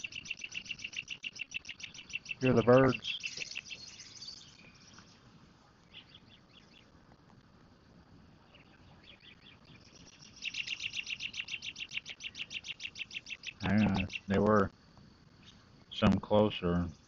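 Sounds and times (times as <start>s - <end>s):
rapid pulsed chirping: 0.0s - 6.9s, 8.4s - 14.5s
high chirps of critters: 0.0s - 7.0s, 8.4s - 14.7s.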